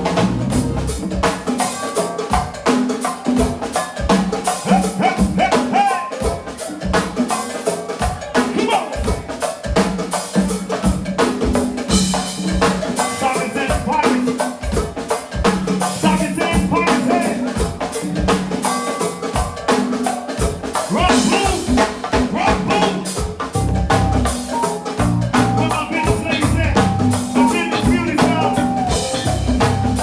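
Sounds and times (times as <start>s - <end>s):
drum kit and percussion beat: 0.0s - 30.0s
person singing: 4.6s - 6.5s, 13.0s - 14.6s, 15.9s - 17.8s, 20.8s - 23.2s, 25.5s - 30.0s.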